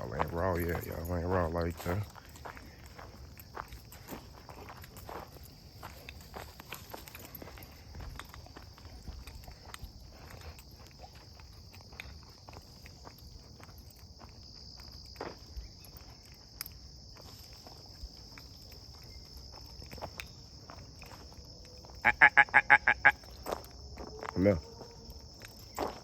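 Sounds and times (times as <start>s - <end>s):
footsteps on trail: 0.0s - 26.0s
insect chorus buzzing: 0.0s - 26.0s
loud pitched chirps: 22.0s - 23.2s.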